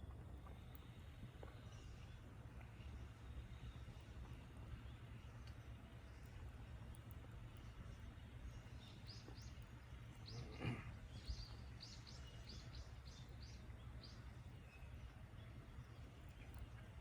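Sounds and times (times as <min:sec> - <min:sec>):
small bird chirping: 0:08.5 - 0:15.0.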